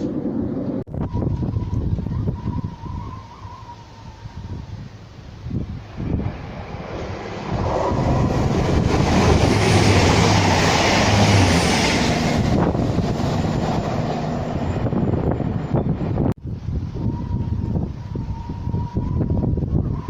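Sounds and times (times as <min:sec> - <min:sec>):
wind buffeting microphone: 0:00.0 - 0:20.0
train passing: 0:04.8 - 0:20.0.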